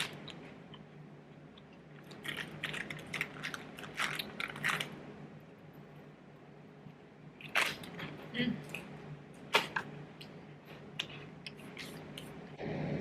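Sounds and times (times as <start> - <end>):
crunching and chewing crisp snack: 1.5 - 5.1.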